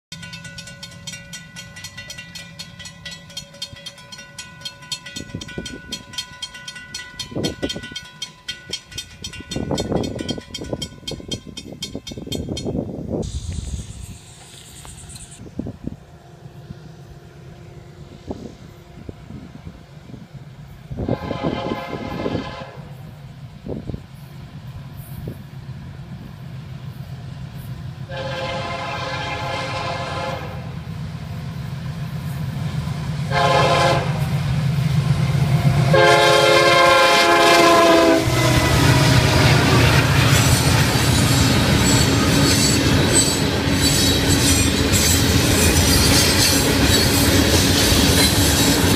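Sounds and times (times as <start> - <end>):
freight cars rolling on rails: 0.1 - 16.0, 21.4 - 48.9
train horn blasts: 20.9 - 23.2, 28.0 - 30.8, 33.2 - 34.4, 35.6 - 40.1.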